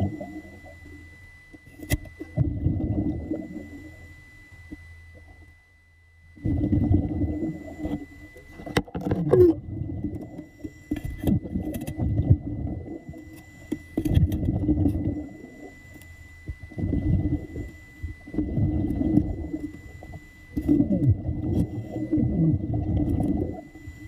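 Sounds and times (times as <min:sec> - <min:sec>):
muffled water churning and gurgling: 0:00.0 - 0:24.0.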